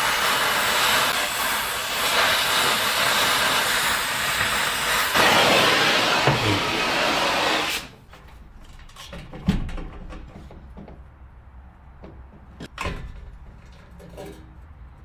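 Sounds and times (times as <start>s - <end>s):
loud hiss of spraying: 0.0s - 7.9s.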